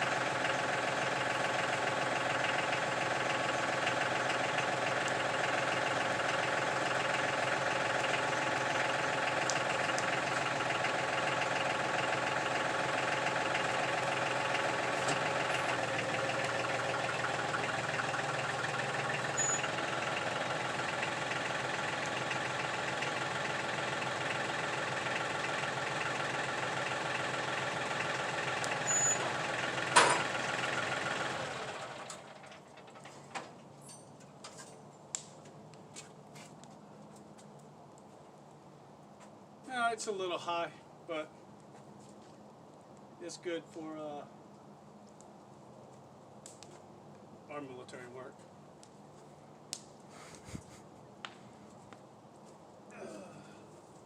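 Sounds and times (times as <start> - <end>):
tractor engine idling: 0.0 - 34.4.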